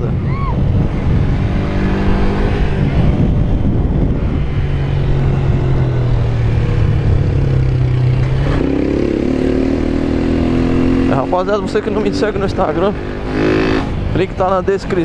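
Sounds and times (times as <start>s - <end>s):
wind rumble on microphone: 0.0s - 15.0s
motorcycle engine running: 0.6s - 15.0s.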